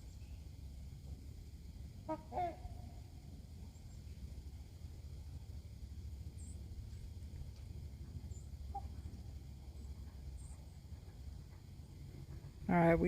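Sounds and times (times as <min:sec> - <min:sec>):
low steady rumble: 0:00.0 - 0:13.0
faint short call: 0:02.0 - 0:03.2.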